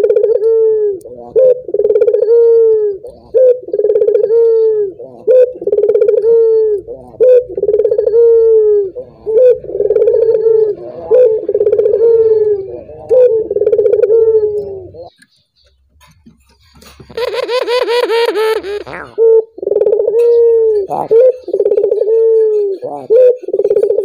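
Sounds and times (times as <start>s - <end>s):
dove cooing: 0.0s - 15.1s, 16.6s - 24.0s.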